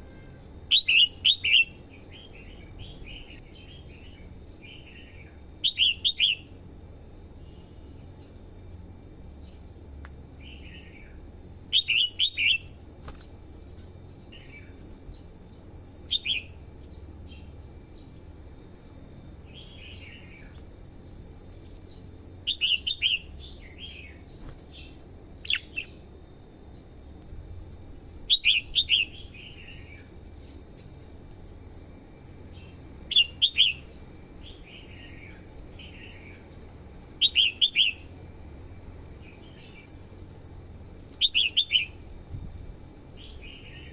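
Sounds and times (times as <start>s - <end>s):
bulbul singing: 0.0s - 6.6s, 10.4s - 12.8s, 14.2s - 15.4s, 16.0s - 18.1s, 19.4s - 20.6s, 21.2s - 26.0s, 28.2s - 30.6s, 32.5s - 38.1s, 41.1s - 42.0s
high-pitched whine: 0.0s - 43.9s.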